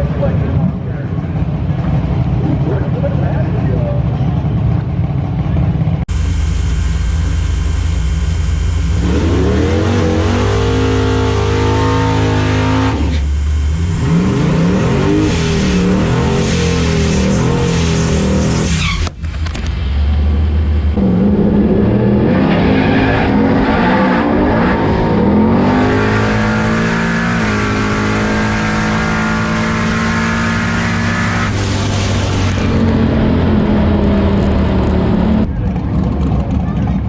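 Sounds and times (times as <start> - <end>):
car engine revving hard: 6.1 - 19.0, 20.6 - 35.5.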